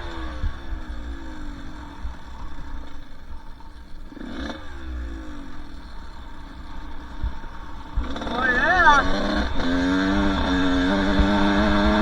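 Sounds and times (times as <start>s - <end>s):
dirt bike engine revving: 7.3s - 12.0s.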